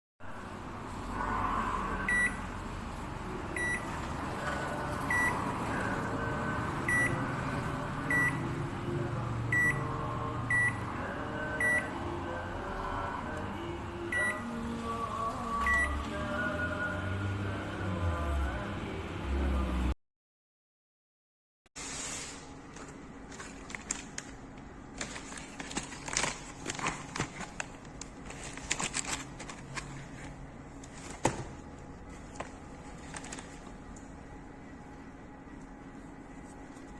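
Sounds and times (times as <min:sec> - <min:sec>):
steady low hum: 0:22.3 - 0:36.9.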